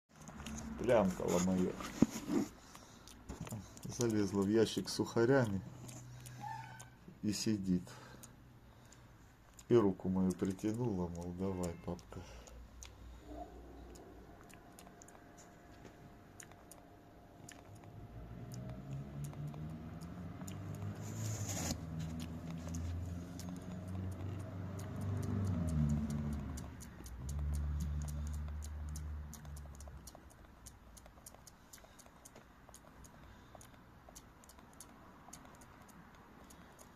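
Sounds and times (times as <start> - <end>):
low hum: 12.3 - 30.6.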